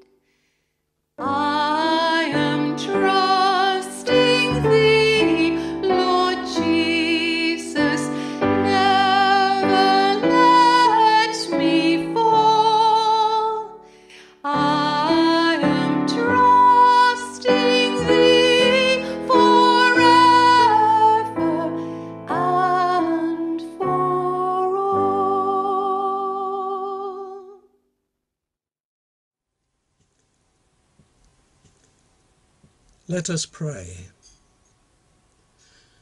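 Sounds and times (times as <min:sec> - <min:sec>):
keyboard accompaniment: 0:01.2 - 0:25.8
woman singing: 0:01.2 - 0:27.7.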